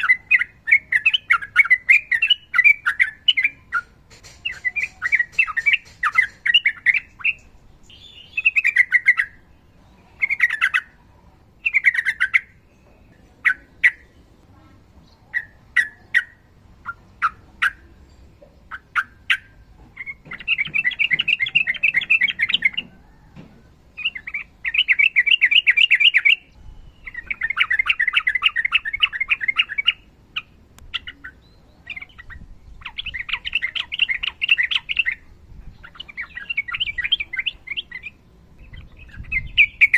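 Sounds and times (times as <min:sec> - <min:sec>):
bulbul chirping: 0:00.0 - 0:09.4
bird rapid rattling trills: 0:01.2 - 0:07.5.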